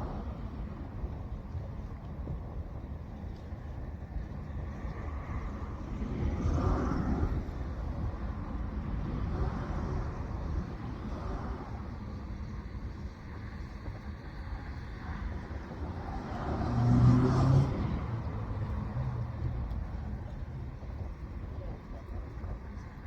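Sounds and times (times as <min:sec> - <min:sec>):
passing engine: 0:14.6 - 0:23.0.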